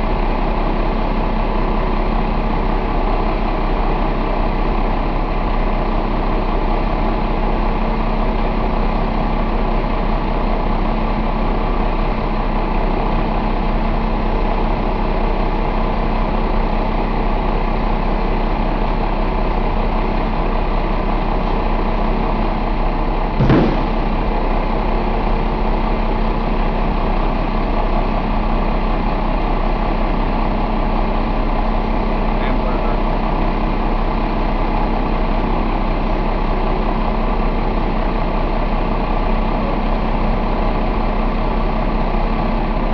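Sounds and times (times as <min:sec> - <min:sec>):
diesel engine idling: 0:00.0 - 0:42.9
brief thump: 0:23.4 - 0:24.2.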